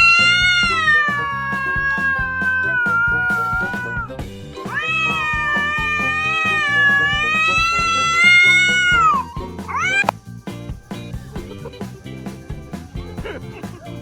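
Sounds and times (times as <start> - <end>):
cat meowing: 0.0 - 10.1
background music with steady beat: 0.0 - 14.0.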